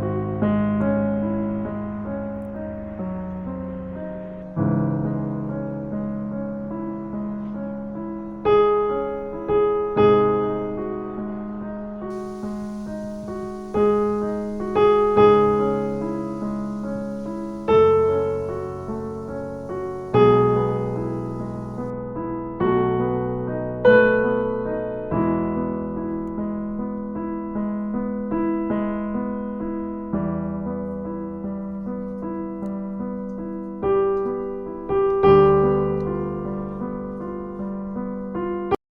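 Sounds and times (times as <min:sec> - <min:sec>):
slow piano music: 0:00.0 - 0:38.8.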